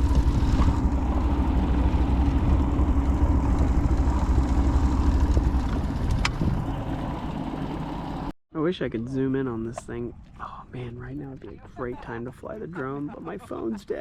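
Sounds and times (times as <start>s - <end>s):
motorboat engine running: 0.0s - 8.3s.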